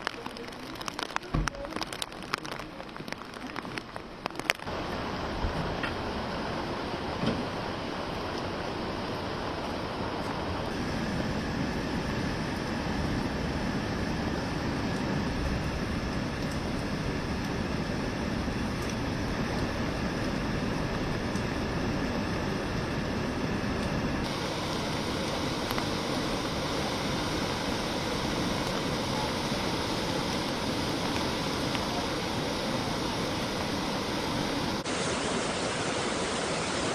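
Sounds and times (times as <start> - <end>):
river water rushing: 0.0 - 13.0, 23.4 - 36.9.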